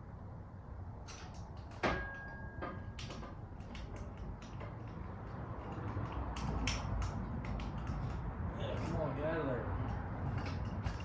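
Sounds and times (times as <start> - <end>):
low highway rumble: 0.0 - 11.0
metal tools clicking and tapping: 1.1 - 9.2.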